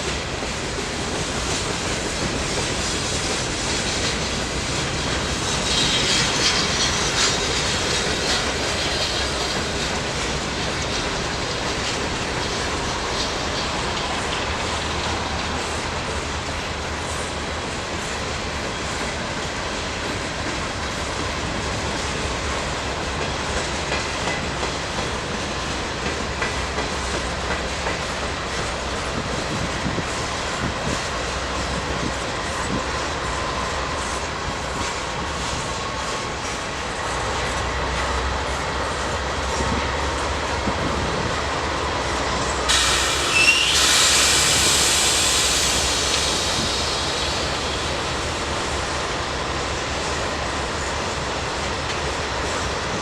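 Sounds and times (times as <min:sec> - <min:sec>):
burst of hiss: 0:42.6 - 0:48.5
wheel squeal: 0:42.7 - 0:44.6.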